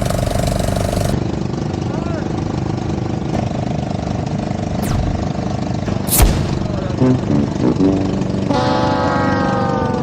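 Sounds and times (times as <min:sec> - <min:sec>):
off-road buggy engines running: 0:00.0 - 0:05.8.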